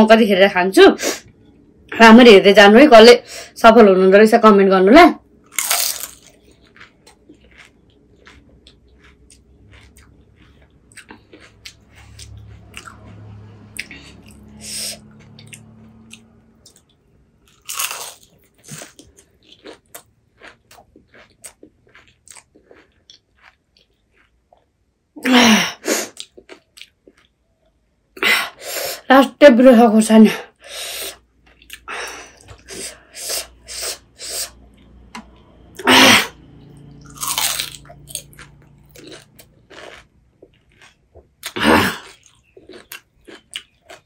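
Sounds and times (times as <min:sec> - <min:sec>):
crunchy shells being chewed: 0:05.3 - 0:24.8, 0:26.1 - 0:27.8, 0:36.8 - 0:44.0.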